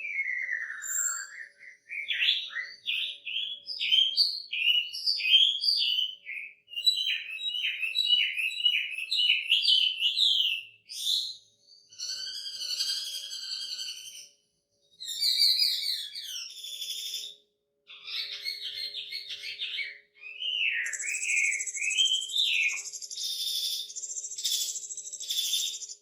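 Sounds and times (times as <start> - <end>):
bird singing whistled notes: 0.0 - 26.0.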